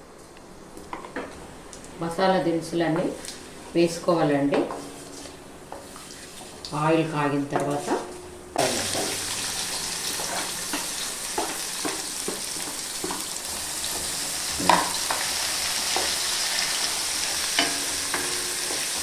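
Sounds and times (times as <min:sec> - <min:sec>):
onions sizzling in oil: 0:08.6 - 0:19.0
spatula tapping and scraping pan: 0:10.2 - 0:13.3, 0:13.9 - 0:19.0.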